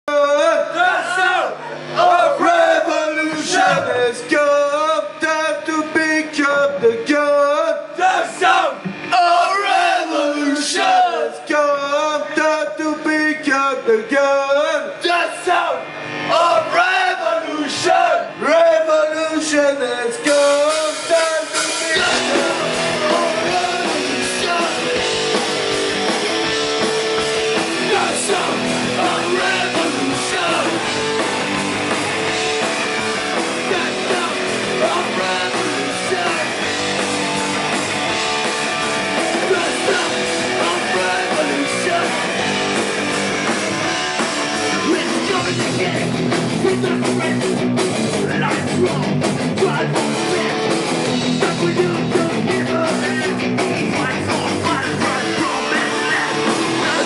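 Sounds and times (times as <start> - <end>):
punk rock band playing live: 0.1 - 11.2, 14.9 - 57.0.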